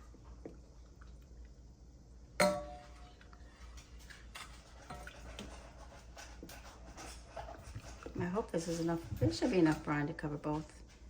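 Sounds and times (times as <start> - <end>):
ladle scraping: 2.8 - 11.0.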